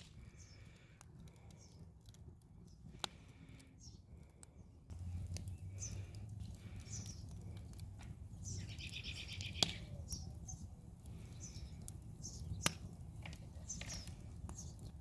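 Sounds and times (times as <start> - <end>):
wood snapping in fire: 0.0 - 15.0
birds chirping: 0.2 - 1.9, 2.6 - 15.0
bird trill: 8.4 - 10.6.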